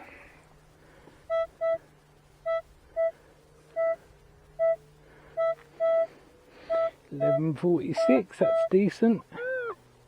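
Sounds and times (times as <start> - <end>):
metal detector beeps: 6.7 - 8.8.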